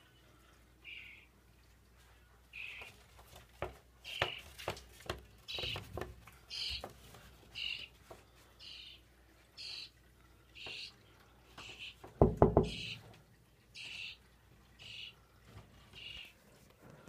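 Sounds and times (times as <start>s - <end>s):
knocks and scratches: 3.4s - 7.3s
birds giving high calls: 4.0s - 4.6s, 5.4s - 6.9s, 7.5s - 8.0s, 8.6s - 9.0s, 9.6s - 10.0s, 10.6s - 13.1s, 13.8s - 15.2s, 15.9s - 16.4s.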